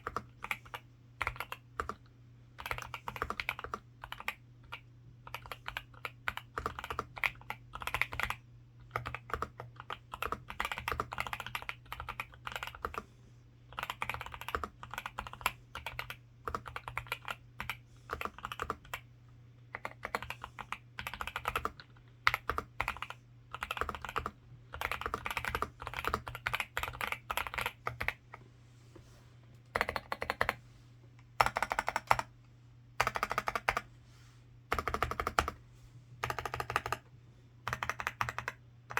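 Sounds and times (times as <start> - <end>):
mechanical keyboard typing: 0.0 - 13.0, 13.7 - 19.0, 19.7 - 28.2, 29.7 - 30.6, 31.4 - 32.3, 33.0 - 33.9, 34.7 - 35.6, 36.2 - 38.9
faint low hum: 0.0 - 38.9.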